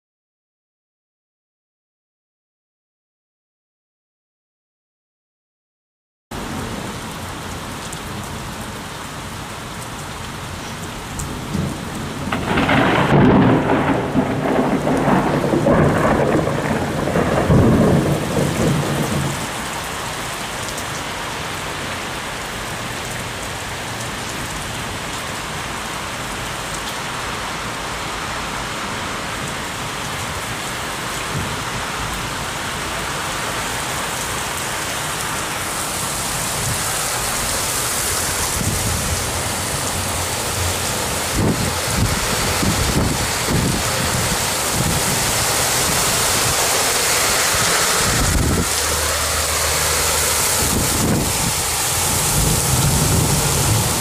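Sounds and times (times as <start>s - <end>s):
heavy rain falling: 6.3s - 54.0s
rolling thunder: 11.5s - 19.6s, 38.4s - 54.0s.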